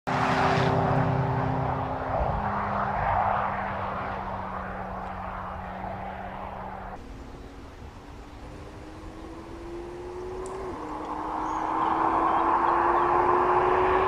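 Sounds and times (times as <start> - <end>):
car engine running: 4.9 - 14.0.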